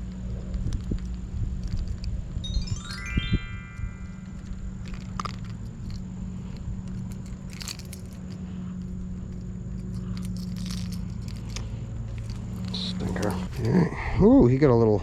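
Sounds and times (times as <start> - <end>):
low steady rumble: 0.0 - 15.0
light clicks and rattles: 4.4 - 13.8.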